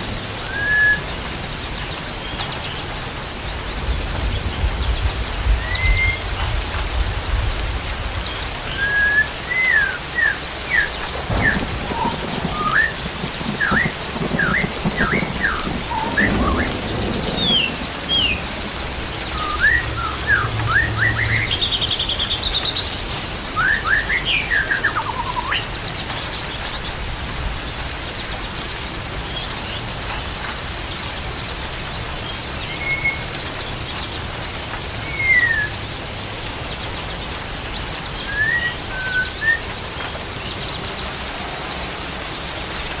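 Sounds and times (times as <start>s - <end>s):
songbird chirping: 8.7s - 25.8s.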